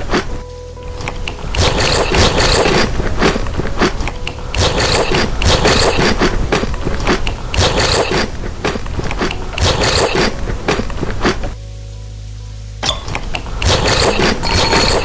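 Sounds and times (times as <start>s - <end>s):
chewing and crunching: 0.9s - 11.5s.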